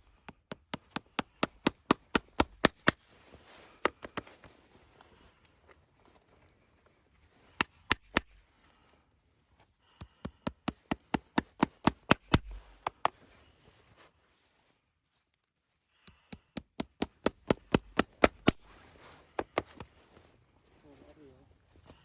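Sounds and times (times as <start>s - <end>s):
hammer striking metal: 0.5s - 3.0s.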